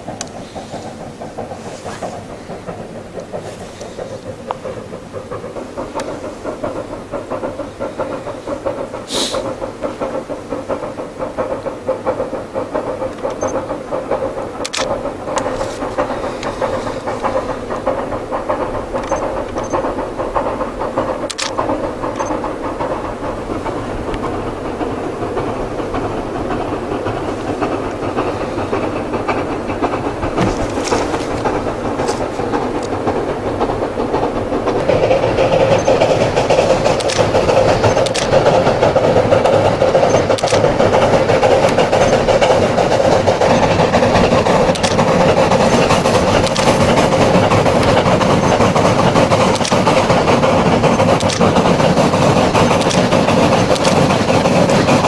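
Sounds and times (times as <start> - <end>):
steam train hiss and clatter: 0.0 - 55.0
sharp clicks: 12.8 - 18.0, 19.0 - 19.9, 21.2 - 22.5, 34.8 - 54.4.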